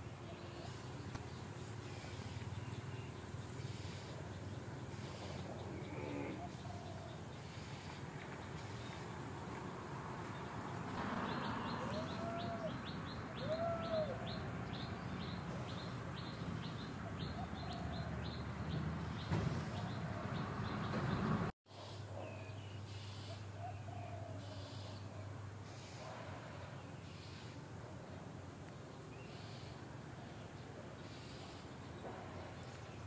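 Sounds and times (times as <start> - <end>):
bird chirping: 10.3 - 25.2
rising and falling bird calls: 10.9 - 21.4.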